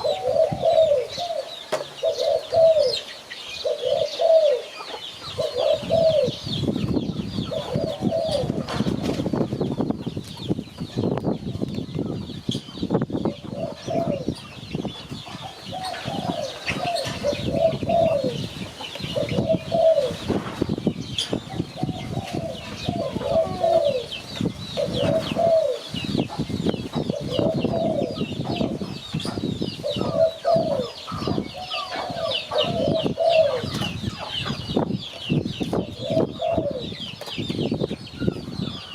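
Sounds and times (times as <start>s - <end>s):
dove cooing: 0.0s - 9.0s, 13.3s - 14.5s, 15.4s - 20.4s, 21.4s - 34.7s, 35.8s - 37.0s
small birds chirping: 0.0s - 38.9s.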